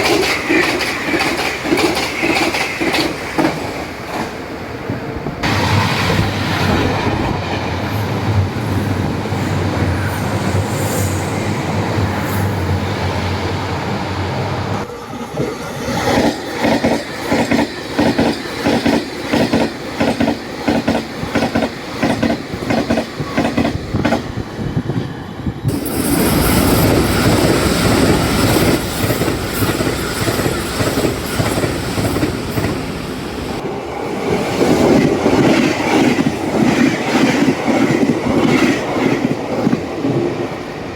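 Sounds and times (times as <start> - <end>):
train wheels clicking over rail joints: 0.0 - 4.4, 15.4 - 24.4, 25.7 - 33.6.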